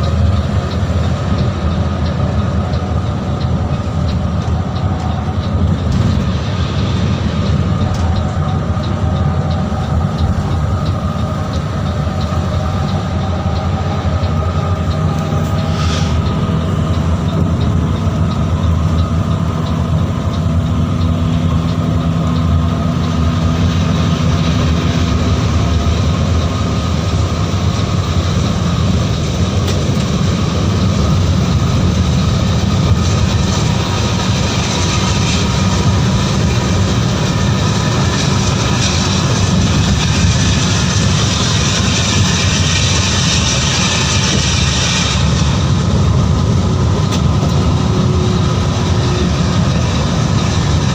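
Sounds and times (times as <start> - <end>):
coach engine drone: 0.0 - 50.9
road and wind noise: 0.0 - 50.9.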